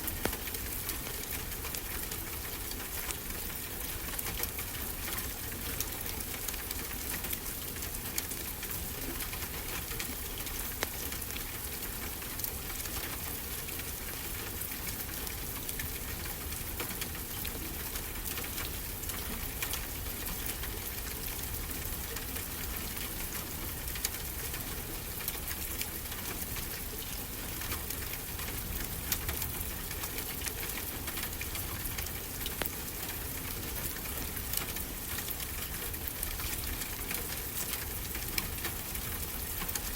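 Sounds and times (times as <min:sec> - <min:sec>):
wood fire crackling: 0:28.2 - 0:39.9.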